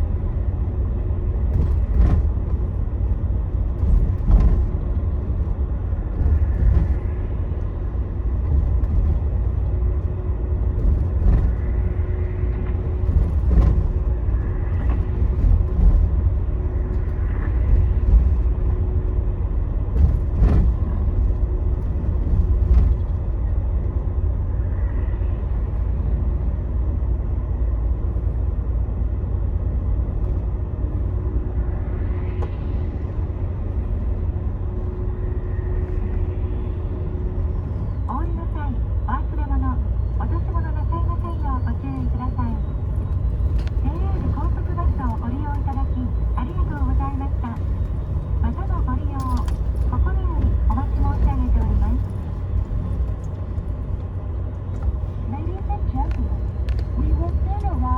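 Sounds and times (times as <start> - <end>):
bus engine and road rumble: 0.0 - 57.9
faint hum: 0.0 - 57.9.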